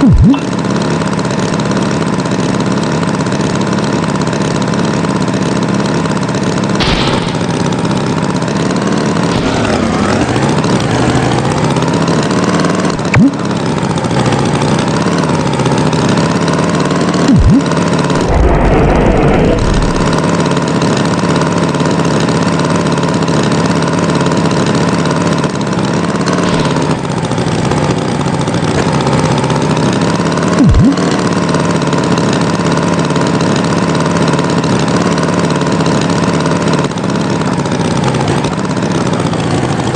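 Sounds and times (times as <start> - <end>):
tractor engine running: 0.0 - 39.9
sharp knocks: 6.8 - 7.7
short rumble: 9.1 - 12.3, 17.3 - 20.8.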